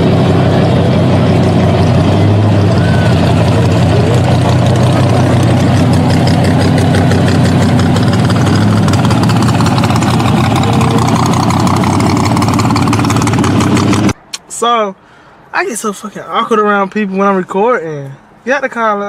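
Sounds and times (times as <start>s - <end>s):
car engine idling: 0.0s - 14.3s.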